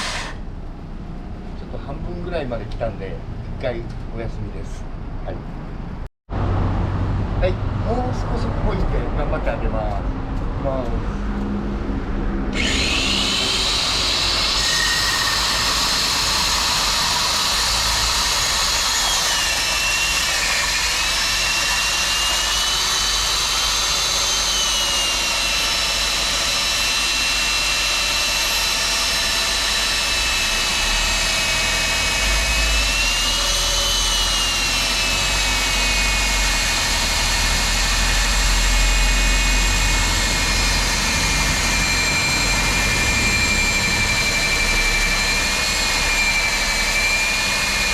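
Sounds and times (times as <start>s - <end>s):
core drill motor whine: 0.0s - 0.4s, 12.5s - 47.9s.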